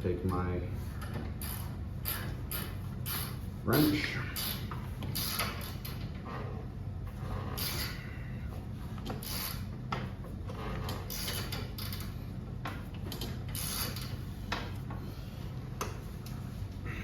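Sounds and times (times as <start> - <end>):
wrench scraping metal: 1.4 - 3.4, 4.2 - 6.0, 7.3 - 8.2, 9.1 - 9.7, 10.5 - 12.2, 13.2 - 14.3.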